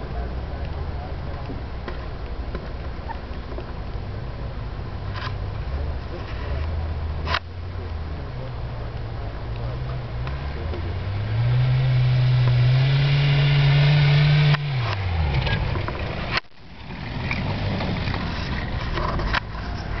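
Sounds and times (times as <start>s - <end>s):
diesel engine revving: 6.6s - 20.0s.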